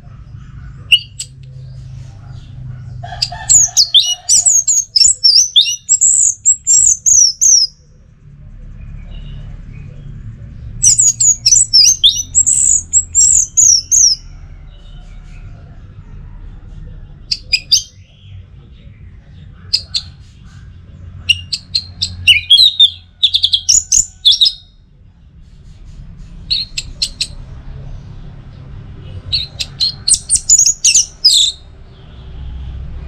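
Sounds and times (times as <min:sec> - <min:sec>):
low steady rumble: 0:00.0 - 0:33.0.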